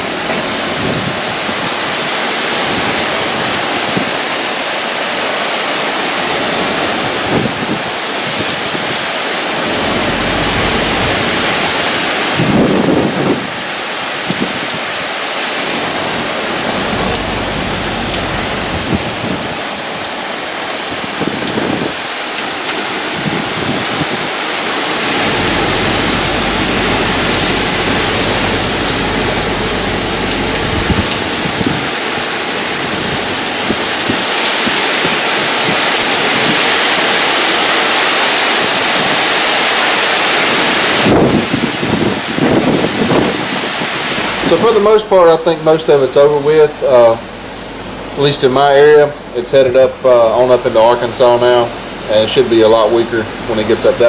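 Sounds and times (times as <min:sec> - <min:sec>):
heavy rain: 0:00.0 - 0:54.0
low rumbling: 0:09.4 - 0:13.4, 0:15.6 - 0:20.3, 0:25.0 - 0:33.6.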